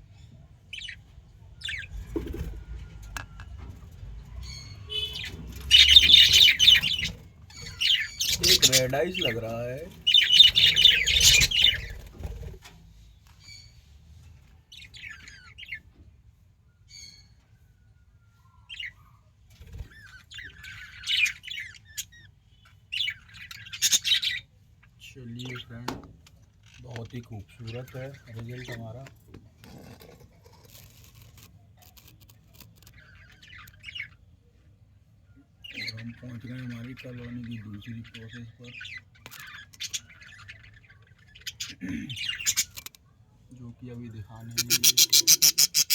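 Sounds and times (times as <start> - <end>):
budgerigars squawking: 0.7 - 3.5, 4.4 - 12.4, 19.8 - 26.1, 26.7 - 29.1, 35.6 - 43.0, 43.6 - 45.9
light scratching and clicking: 25.4 - 34.0.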